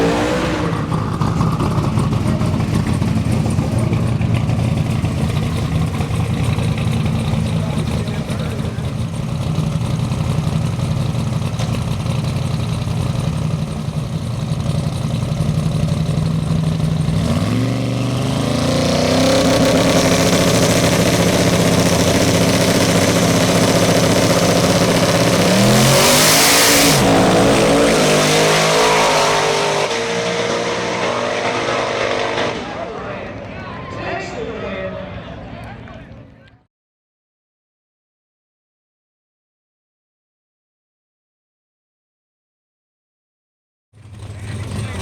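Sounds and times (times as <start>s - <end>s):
pickup truck engines racing: 0.0s - 36.6s, 44.0s - 45.0s.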